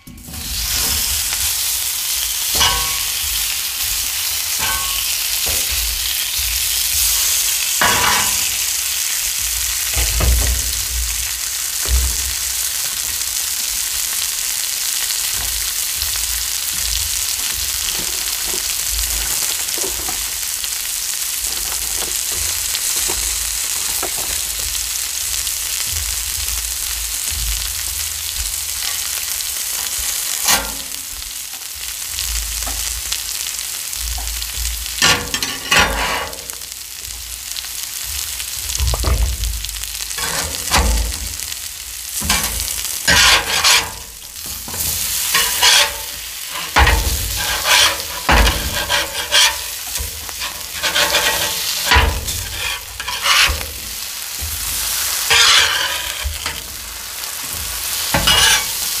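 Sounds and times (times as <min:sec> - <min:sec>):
metal spatula scraping griddle: 0:00.0 - 0:13.0, 0:14.8 - 0:24.7, 0:28.8 - 0:31.2, 0:33.9 - 0:36.7, 0:40.0 - 0:41.5, 0:42.1 - 0:59.0
potato and onion slices sizzling: 0:00.0 - 0:59.0.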